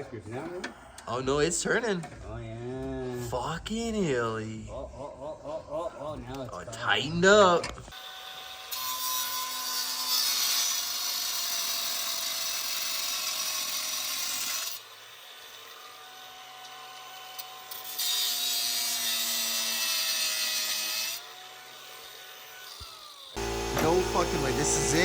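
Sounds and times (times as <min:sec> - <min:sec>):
angle grinder cutting metal: 0:08.0 - 0:25.0.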